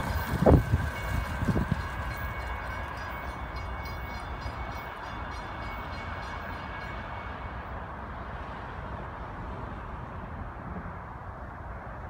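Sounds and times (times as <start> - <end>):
train wheel clicks: 0.0 - 5.9
train rumbling past: 0.0 - 12.0.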